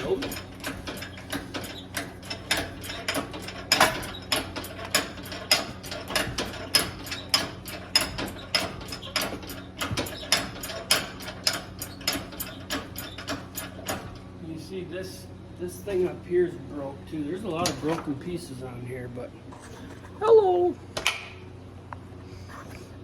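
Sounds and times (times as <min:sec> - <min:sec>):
ratcheting hoist clicking: 0:00.0 - 0:14.2.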